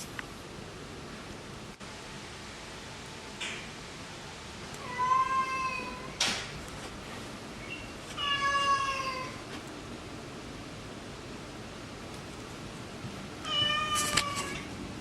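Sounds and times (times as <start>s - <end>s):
cat meowing: 4.8s - 6.2s, 8.2s - 9.4s, 13.4s - 14.7s.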